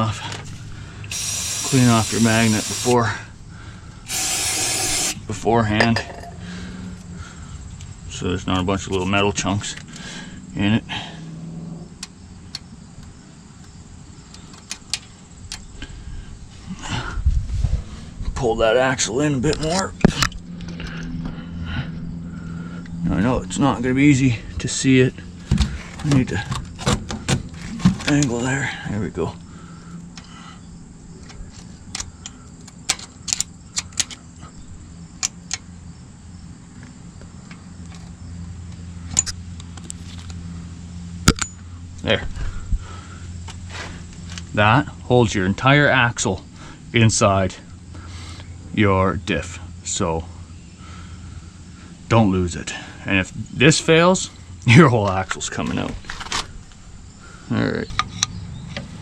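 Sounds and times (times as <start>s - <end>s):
metal clinks: 5.8s - 6.4s.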